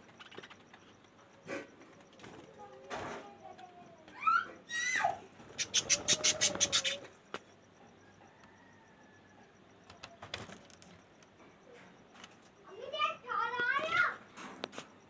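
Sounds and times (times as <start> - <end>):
budgerigar chirping: 5.6 - 7.1.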